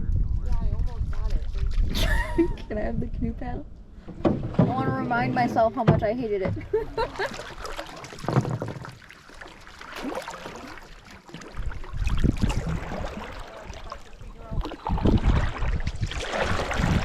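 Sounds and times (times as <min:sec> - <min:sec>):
wind rumble on microphone: 0:00.0 - 0:07.3, 0:11.5 - 0:17.0
paddle strokes splashing water: 0:04.0 - 0:17.0.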